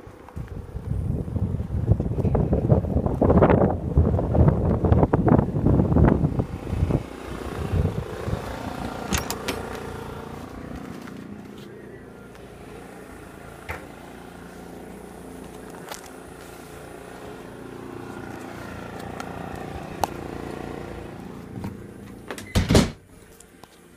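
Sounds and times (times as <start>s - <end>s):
wind buffeting microphone: 0.1s - 10.1s
electric helicopter humming: 0.5s - 22.4s.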